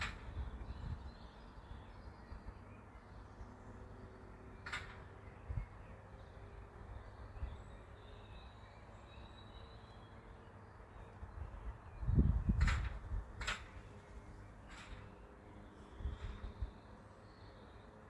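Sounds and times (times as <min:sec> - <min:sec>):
wind rumbling on microphone: 0:00.0 - 0:01.4, 0:04.7 - 0:05.8, 0:11.3 - 0:14.0, 0:15.9 - 0:16.8
distant bird calls: 0:00.0 - 0:18.0.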